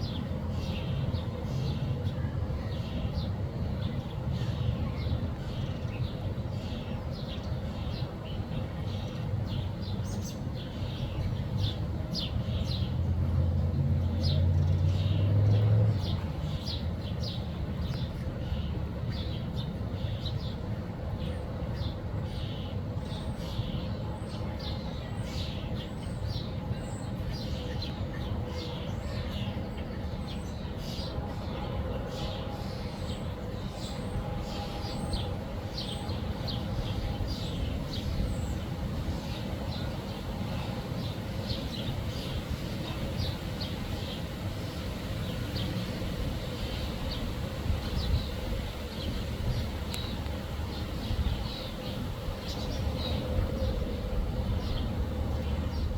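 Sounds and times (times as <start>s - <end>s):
road traffic rumble: 0.0s - 55.9s
songbirds chirping: 0.0s - 55.9s.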